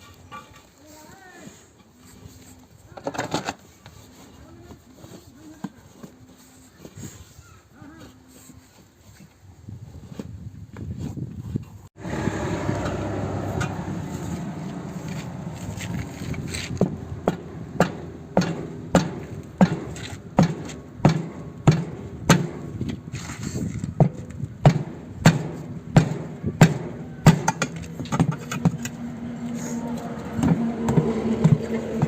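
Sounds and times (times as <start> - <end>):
hammer blows: 12.0 - 32.0.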